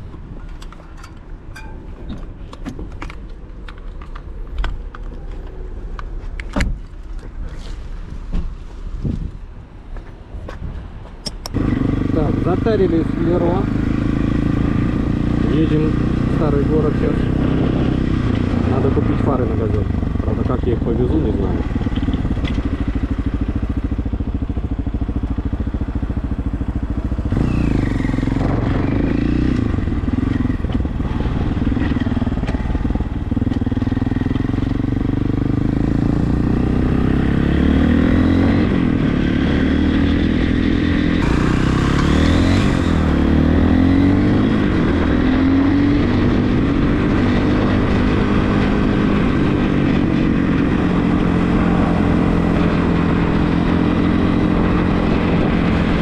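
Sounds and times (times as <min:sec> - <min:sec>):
motorcycle engine revving: 0:11.5 - 0:56.0.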